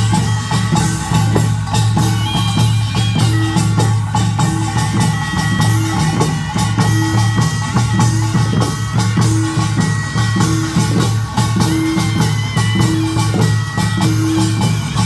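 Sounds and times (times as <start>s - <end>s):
drums: 0.0s - 15.0s
high held melody notes: 0.0s - 15.0s
small gongs clanging: 0.0s - 15.0s.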